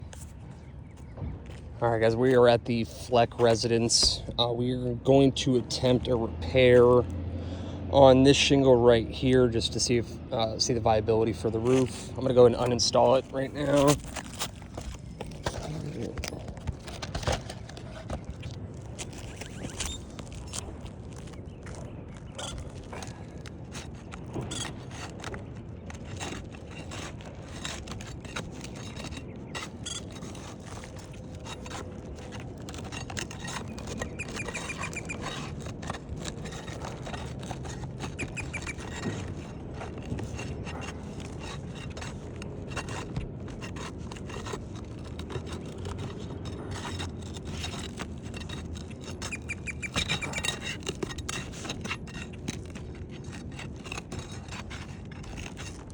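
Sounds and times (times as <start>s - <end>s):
shingle scraping and clicking: 0.0s - 55.9s
short squeaks: 9.2s - 55.9s.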